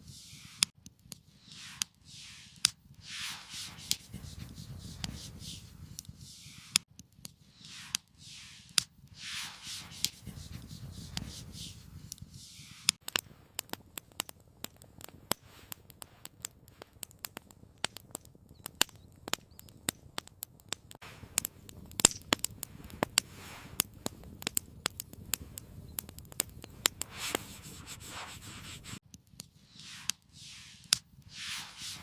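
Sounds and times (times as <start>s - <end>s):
soft rustle: 0.0s - 13.6s, 15.1s - 17.0s, 22.6s - 24.4s, 26.5s - 32.0s
wood fire crackling: 0.0s - 32.0s.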